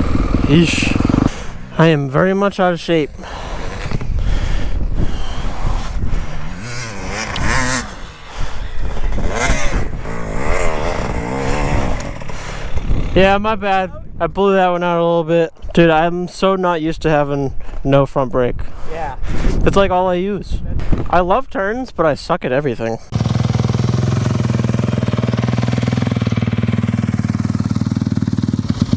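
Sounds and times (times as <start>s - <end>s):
dirt bike engine revving: 0.0s - 13.3s, 23.1s - 28.9s.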